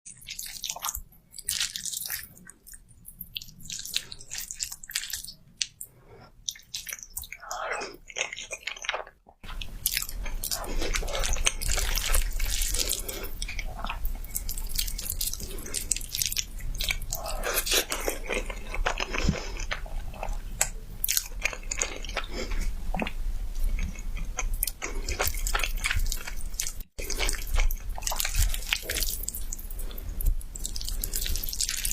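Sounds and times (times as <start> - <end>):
biting and chewing: 6.5 - 31.9.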